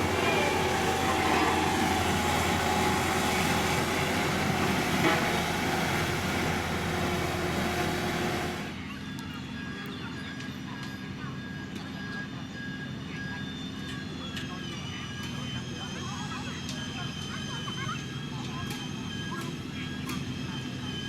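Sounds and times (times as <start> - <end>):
diesel engine droning: 0.0 - 9.0.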